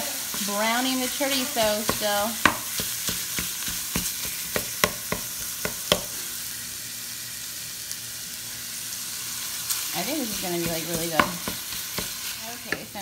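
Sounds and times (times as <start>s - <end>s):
meat sizzling in a frying pan: 0.0s - 13.0s
wooden spoon knocking against pan: 1.6s - 6.1s, 10.6s - 12.1s.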